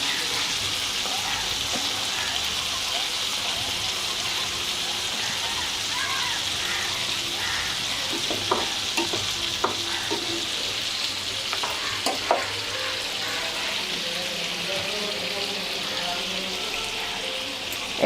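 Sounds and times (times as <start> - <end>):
chicken sizzling in a frying pan: 0.0 - 18.0
utensil knocking against pan: 8.1 - 10.4, 11.5 - 12.5.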